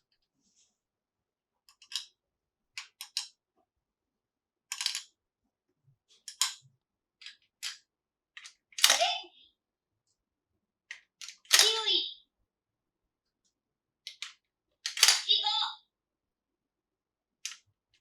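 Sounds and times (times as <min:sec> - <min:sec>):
plastic toy pieces clicking: 0:01.7 - 0:03.4, 0:04.7 - 0:05.2, 0:06.2 - 0:07.8, 0:08.4 - 0:09.1, 0:10.9 - 0:11.8, 0:14.0 - 0:15.3, 0:17.4 - 0:18.0.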